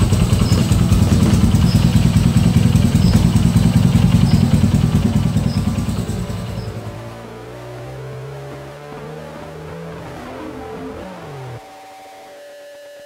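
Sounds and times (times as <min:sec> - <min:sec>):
cricket chirping: 0:00.0 - 0:07.2
motorcycle engine running: 0:00.0 - 0:07.5.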